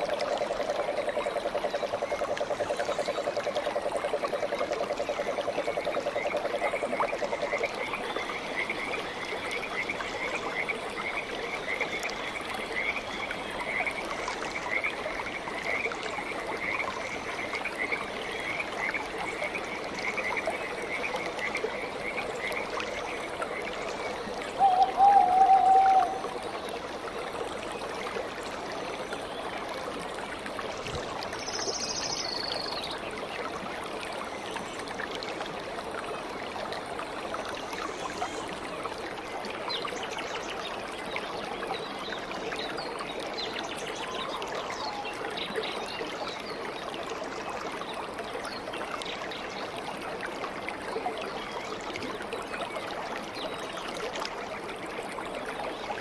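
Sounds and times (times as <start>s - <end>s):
stream water trickling: 0.0s - 56.0s.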